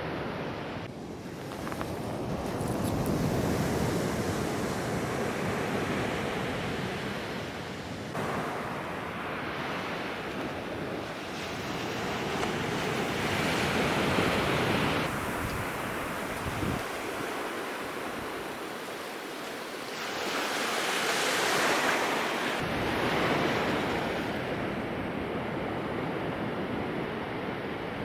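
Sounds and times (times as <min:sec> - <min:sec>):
ocean surf washing onto beach: 0:00.0 - 0:28.0
wind buffeting microphone: 0:09.8 - 0:18.7.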